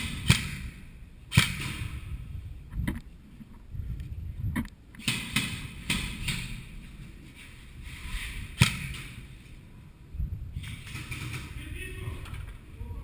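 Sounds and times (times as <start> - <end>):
airsoft gun shots: 0.0 - 2.0, 5.0 - 6.6, 8.6 - 9.3.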